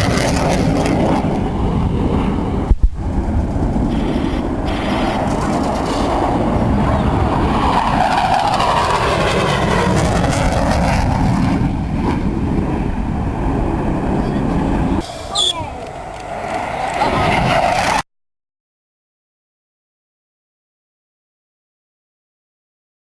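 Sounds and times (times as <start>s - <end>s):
airplane engine flying past: 0.0s - 18.0s.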